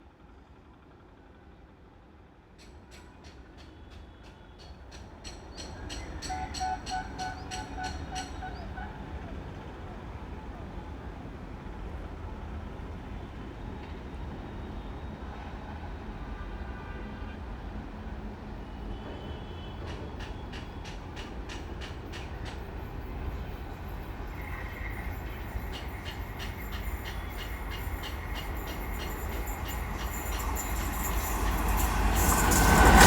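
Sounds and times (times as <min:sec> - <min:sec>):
train rumble: 0:02.5 - 0:33.0
wheels clacking over rail joints: 0:19.8 - 0:23.2, 0:24.4 - 0:33.0.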